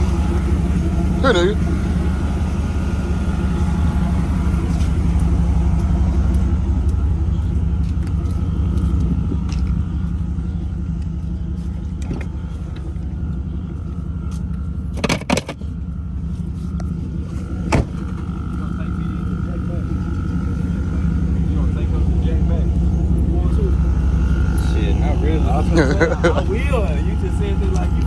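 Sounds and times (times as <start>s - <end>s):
engine idling: 0.0s - 28.0s.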